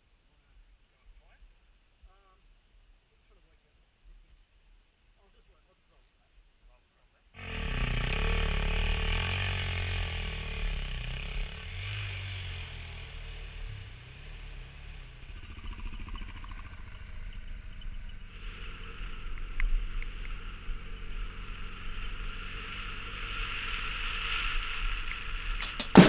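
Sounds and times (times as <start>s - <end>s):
brief knock: 25.6s - 26.0s.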